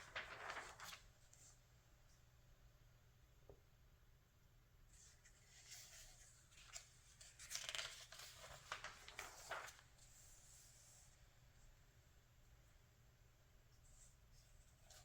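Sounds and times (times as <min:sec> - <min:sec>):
magazine pages turning: 0:00.0 - 0:01.1, 0:05.2 - 0:10.2.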